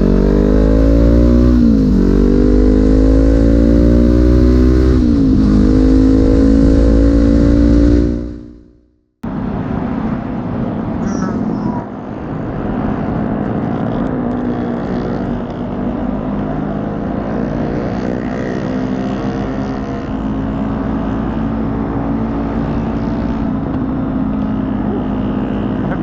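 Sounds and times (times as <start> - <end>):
motorcycle engines running: 0.0 - 26.0.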